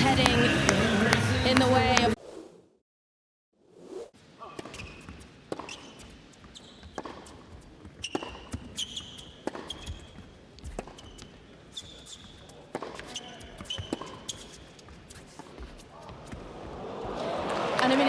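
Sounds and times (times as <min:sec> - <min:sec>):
shoes squeaking on court: 0:04.4 - 0:18.0
tennis ball strikes and bounces: 0:04.5 - 0:17.2.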